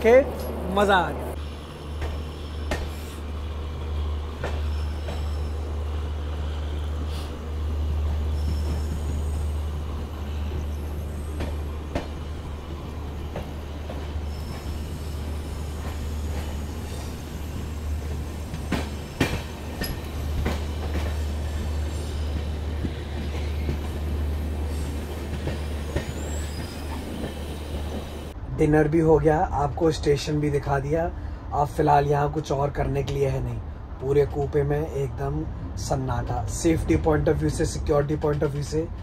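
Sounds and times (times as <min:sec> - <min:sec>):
train wheels rumbling on track: 0:00.0 - 0:28.4.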